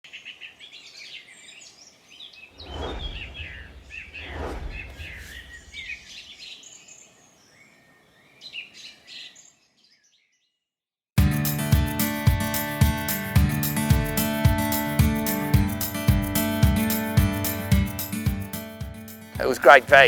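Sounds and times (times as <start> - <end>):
birds chirping and trilling: 0.1 - 10.6
low rumble: 2.6 - 6.2.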